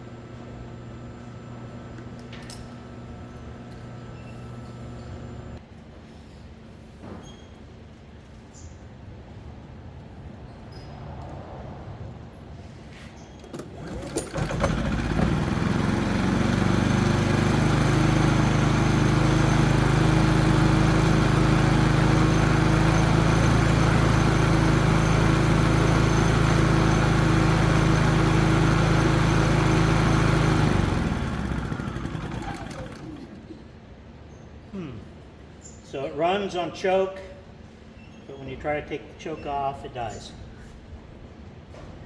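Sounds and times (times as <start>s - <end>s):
generator engine running: 13.5s - 33.6s.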